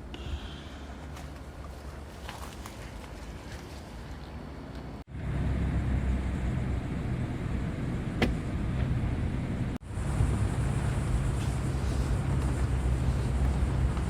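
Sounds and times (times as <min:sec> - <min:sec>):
outdoor background: 0:00.0 - 0:14.0
vehicle driving rumble: 0:00.0 - 0:14.0.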